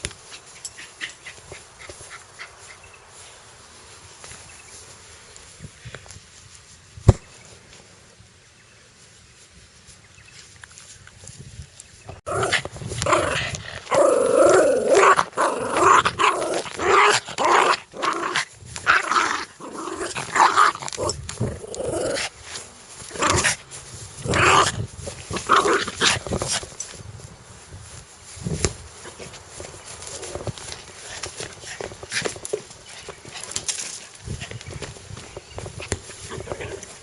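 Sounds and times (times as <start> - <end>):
dog growling aggressively: 12.3 - 22.4, 23.1 - 23.6, 24.2 - 26.6.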